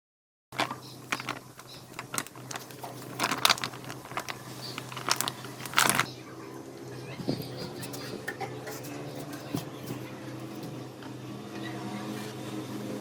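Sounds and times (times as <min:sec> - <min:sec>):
sharp clicks and crackling knocks: 0:00.6 - 0:06.1.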